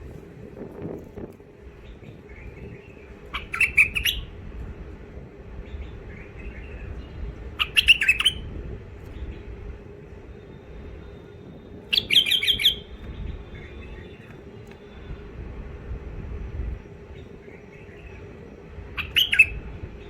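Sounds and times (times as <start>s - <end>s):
faint steady hum: 0.0s - 20.0s
birds chattering: 1.7s - 4.4s, 5.6s - 8.5s, 11.9s - 14.9s, 16.8s - 19.7s
soft bird warbles: 1.8s - 4.3s, 5.8s - 8.4s.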